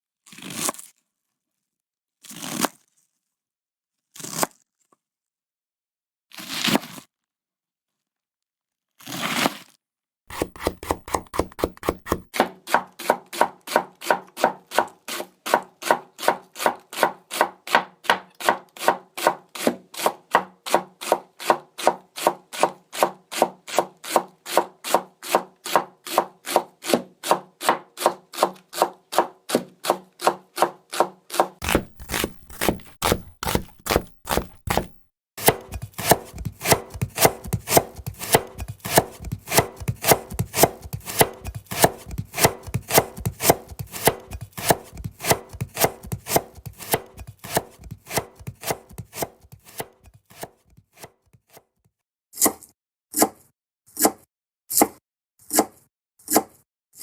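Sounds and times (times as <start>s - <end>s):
knife chopping on cutting board: 10.3s - 51.1s.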